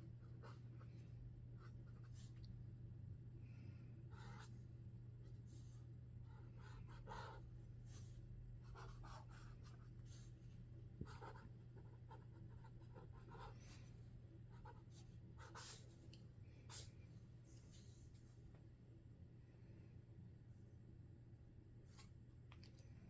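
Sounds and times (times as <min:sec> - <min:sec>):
marker scratching on paper: 0:08.6 - 0:10.1, 0:11.1 - 0:13.5.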